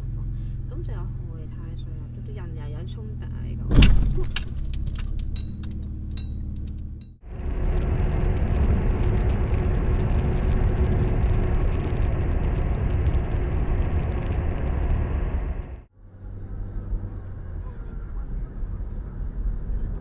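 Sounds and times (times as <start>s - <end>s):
car engine and road noise: 0.0s - 20.0s
light clinks: 4.1s - 7.2s.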